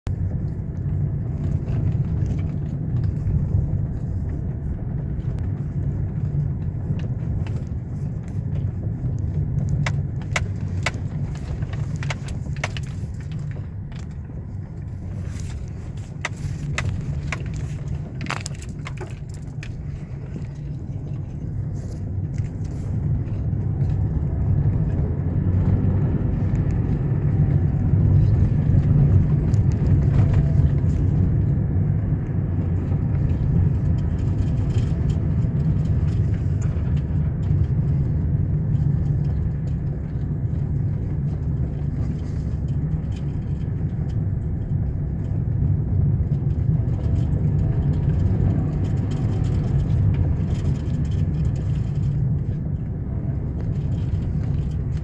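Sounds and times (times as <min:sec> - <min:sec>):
vehicle engine rumble: 0:00.0 - 0:55.0.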